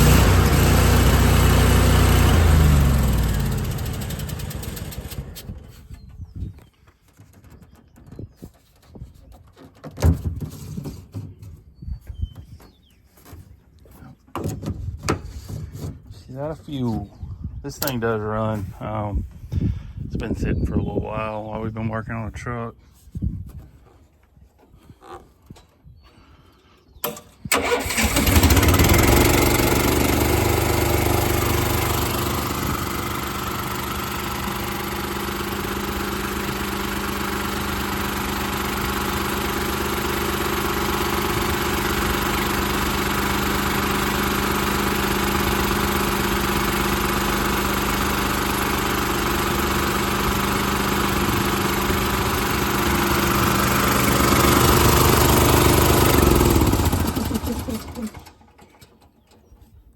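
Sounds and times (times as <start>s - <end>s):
small engine running: 0.0s - 6.1s, 27.5s - 58.8s.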